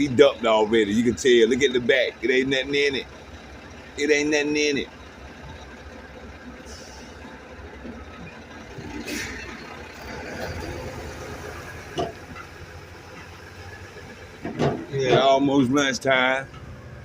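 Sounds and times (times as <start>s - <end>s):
truck engine idling: 0.0s - 17.0s
short hiss: 9.0s - 9.4s.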